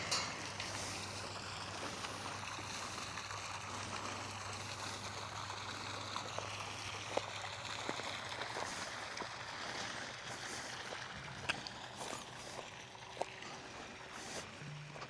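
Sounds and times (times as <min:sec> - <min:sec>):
low hum: 0:14.4 - 0:15.0.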